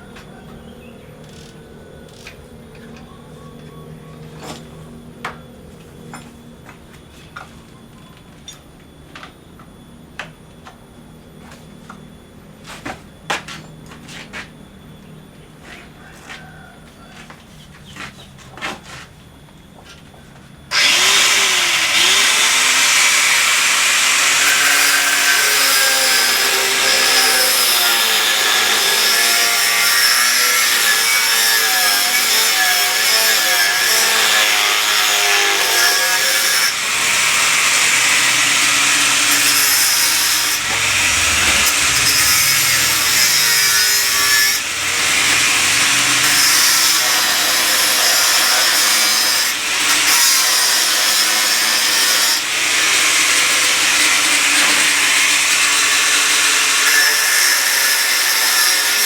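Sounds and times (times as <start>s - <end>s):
electric power tool cutting: 20.7s - 59.0s.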